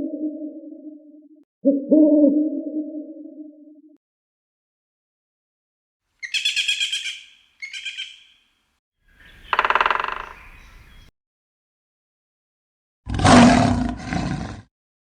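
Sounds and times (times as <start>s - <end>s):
woodpecker rattling calls: 6.2s - 8.5s, 9.1s - 11.1s.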